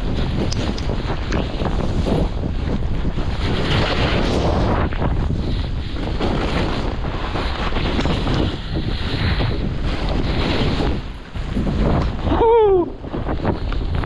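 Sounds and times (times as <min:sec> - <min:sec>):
wind buffeting microphone: 0:00.0 - 0:14.0
skis hissing through snow: 0:00.1 - 0:12.2
person crying out: 0:12.3 - 0:13.0.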